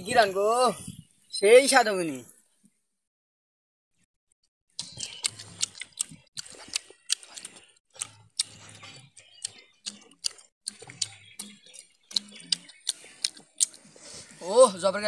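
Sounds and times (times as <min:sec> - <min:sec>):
chewing and lip-smacking: 0:04.8 - 0:14.4.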